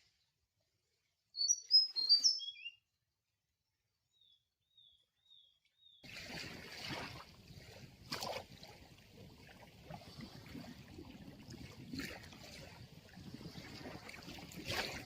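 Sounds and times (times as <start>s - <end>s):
faint wavering bird call: 1.4s - 2.8s
sea water washing against shore: 6.0s - 15.0s.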